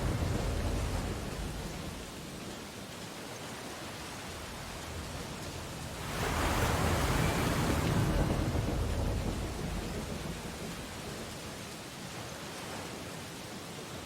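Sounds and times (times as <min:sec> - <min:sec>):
wave breaking: 0:00.0 - 0:02.8, 0:03.9 - 0:11.9
steady surf hiss: 0:00.0 - 0:14.0.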